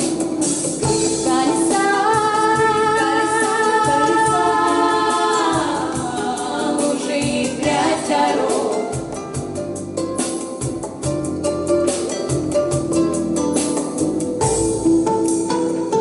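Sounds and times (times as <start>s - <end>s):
vocal quartet singing in harmony: 0.9s - 9.6s.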